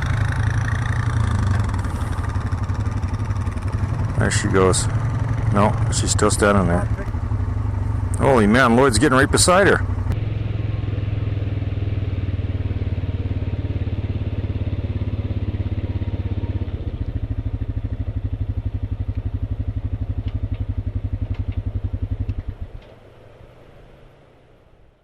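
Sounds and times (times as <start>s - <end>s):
atv engine idling: 0.0s - 24.9s.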